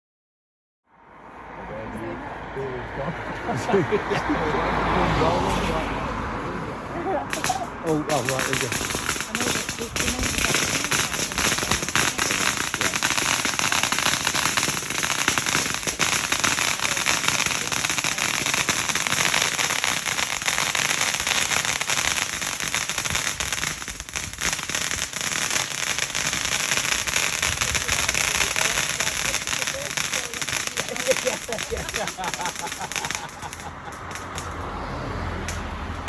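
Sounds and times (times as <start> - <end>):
fireworks crackling: 5.2 - 6.0, 7.2 - 34.7.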